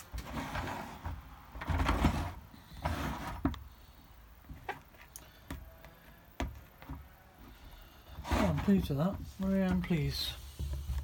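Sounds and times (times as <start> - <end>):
rubbing or scraping: 0.0 - 3.6, 8.1 - 11.0.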